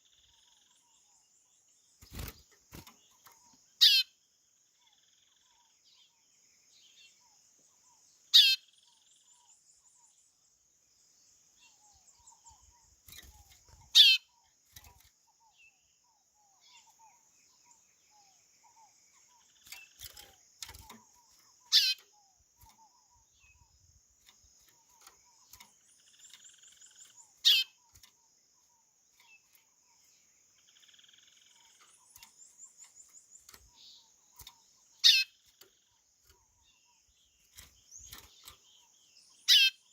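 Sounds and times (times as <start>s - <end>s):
soft high chirping trills: 11.5s - 39.9s.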